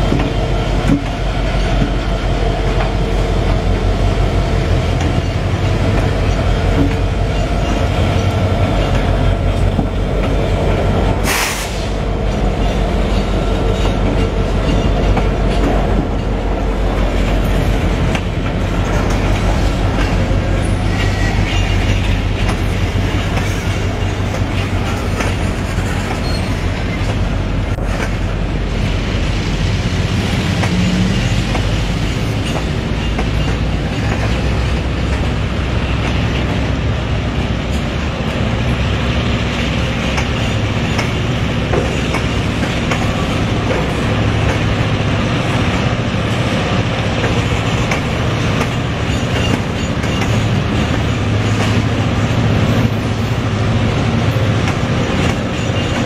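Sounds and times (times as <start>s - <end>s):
train rumbling on rails: 0.0s - 56.0s.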